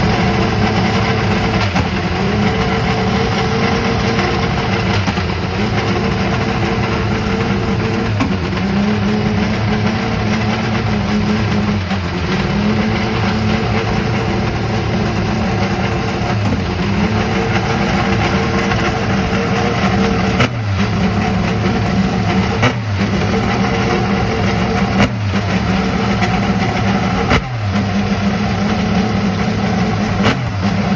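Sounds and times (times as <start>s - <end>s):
engine throttle blips: 0.0s - 30.9s
race car engine idling: 0.0s - 30.9s.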